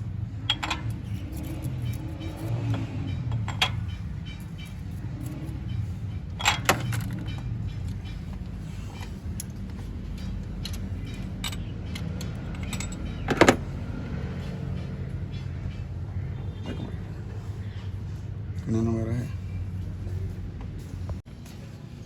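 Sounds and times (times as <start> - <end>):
car engine idling: 0.0 - 21.6
metal tools clinking: 0.4 - 13.8.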